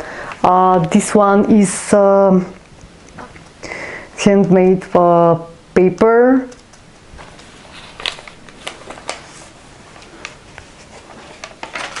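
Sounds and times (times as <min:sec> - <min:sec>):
paper crinkles and clicks: 0:06.6 - 0:12.0
paper pages rustling: 0:07.2 - 0:12.0.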